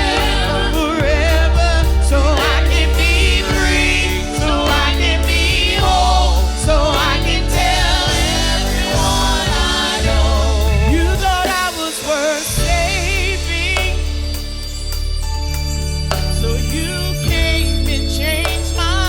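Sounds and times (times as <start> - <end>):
person singing with vibrato: 0.0 - 14.6
instrumental accompaniment with bass: 0.0 - 19.0.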